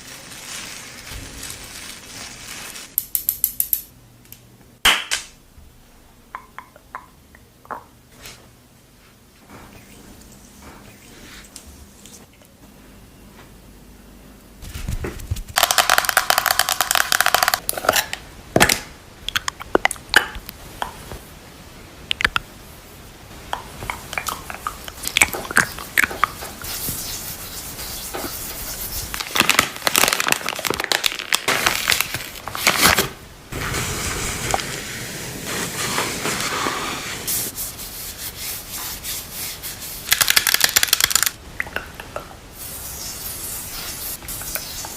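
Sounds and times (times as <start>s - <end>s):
packaging crinkling: 0.0s - 3.0s, 29.1s - 33.2s, 40.1s - 41.4s.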